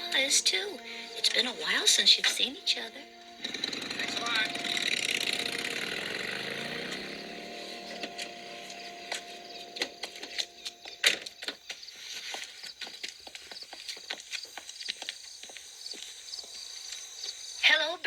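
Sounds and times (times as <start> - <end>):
car engine winding down: 0.0 - 11.6
crickets chirping: 0.0 - 18.0.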